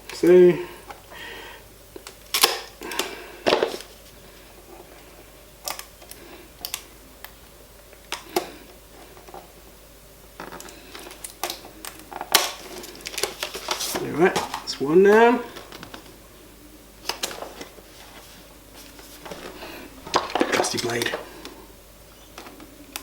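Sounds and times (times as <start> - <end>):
plastic packaging clicking and snapping: 2.0 - 3.9, 5.0 - 8.6, 10.4 - 14.7, 17.0 - 17.9, 18.8 - 21.6.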